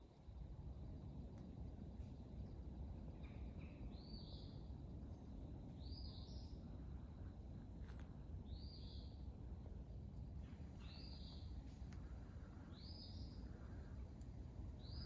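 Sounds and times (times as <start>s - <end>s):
faint low rumble: 0.0s - 15.0s.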